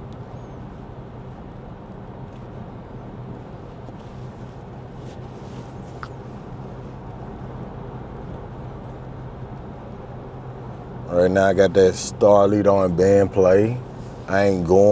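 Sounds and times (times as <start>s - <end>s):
low engine hum: 0.0s - 14.9s.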